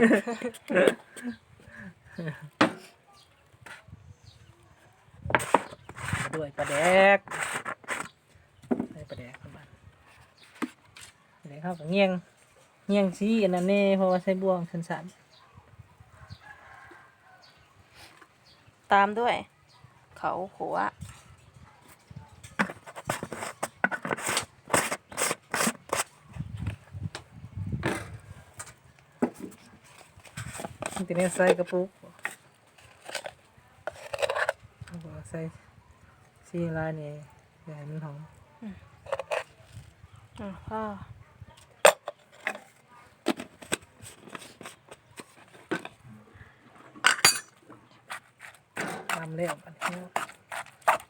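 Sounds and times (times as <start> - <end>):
utensil scraping and mixing dip: 5.4 - 8.2, 22.6 - 26.3, 47.9 - 51.0
utensils clinking against dishes: 47.1 - 47.6.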